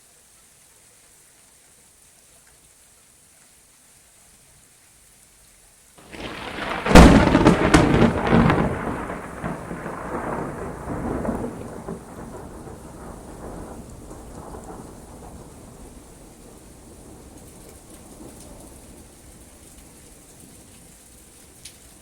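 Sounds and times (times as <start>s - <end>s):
steady rain: 0.0s - 22.0s
thunder rumbling and cracking: 6.0s - 18.9s.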